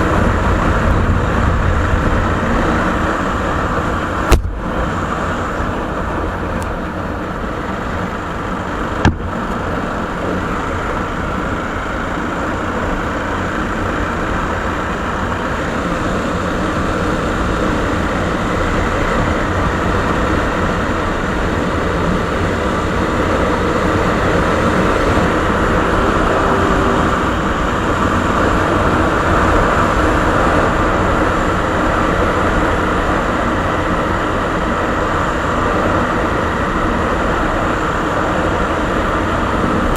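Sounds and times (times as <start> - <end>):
motorcycle engine running: 0.0 - 39.9
sharp click: 4.3 - 4.6.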